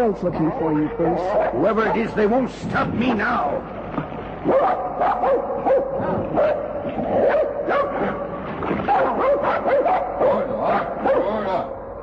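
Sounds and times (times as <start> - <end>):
sled dogs barking and yipping: 0.4 - 2.2, 4.4 - 11.7.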